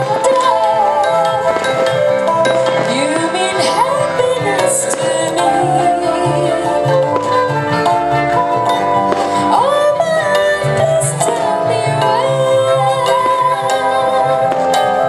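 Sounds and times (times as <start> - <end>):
instrumental pop music: 0.0 - 15.0.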